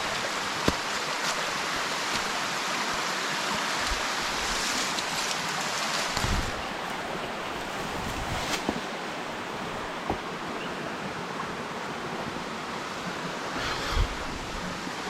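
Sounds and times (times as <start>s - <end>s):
waterfall rushing: 0.0s - 7.5s.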